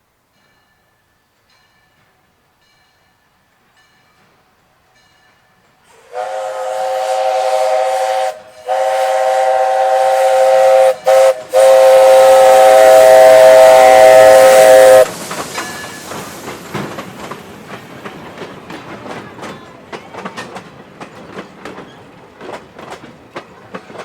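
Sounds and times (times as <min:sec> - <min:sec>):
train wheels clicking over rail joints: 0:05.8 - 0:24.0
steam whistle blasts: 0:05.9 - 0:15.1.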